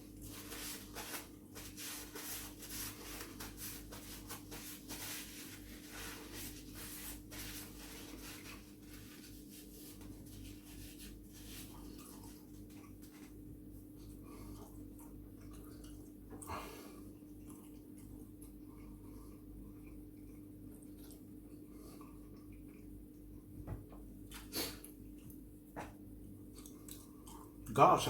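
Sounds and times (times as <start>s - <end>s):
faint low hum: 0.0s - 28.0s
person chewing food: 11.6s - 23.5s, 24.2s - 27.7s.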